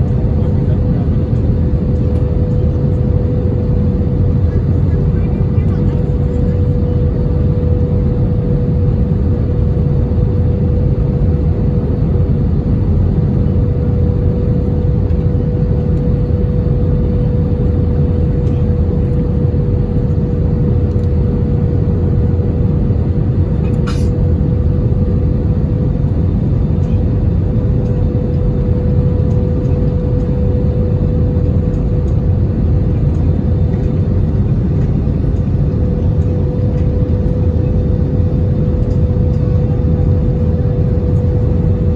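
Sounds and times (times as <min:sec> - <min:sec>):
aircraft cabin engine rumble: 0:00.0 - 0:41.9
engine whine: 0:00.0 - 0:41.9.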